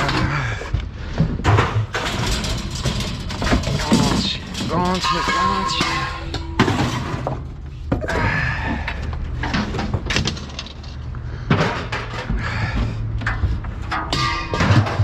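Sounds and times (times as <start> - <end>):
scrap metal clanging onto a pile: 1.4 - 7.6, 13.2 - 15.0.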